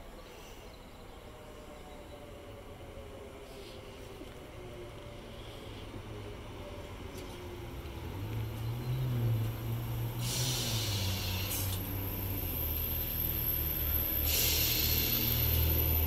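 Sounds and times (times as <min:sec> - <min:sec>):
high whine of train: 0:00.0 - 0:16.0
rushing hiss of passing carriages: 0:10.0 - 0:16.0.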